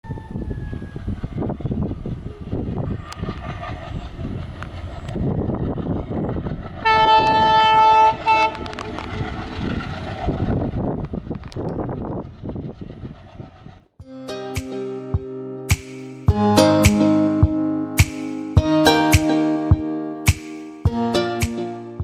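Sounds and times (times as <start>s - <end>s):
train rumbling: 0.0s - 14.0s
locomotive horn blasts: 6.8s - 8.8s.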